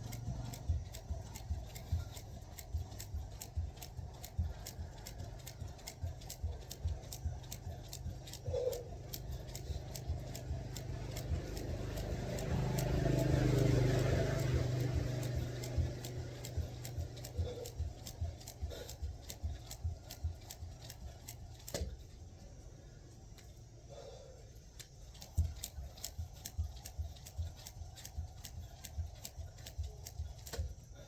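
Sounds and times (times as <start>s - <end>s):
skipping rope slapping the ground: 0.0s - 22.2s, 25.0s - 30.8s
passing vehicle: 10.7s - 17.7s.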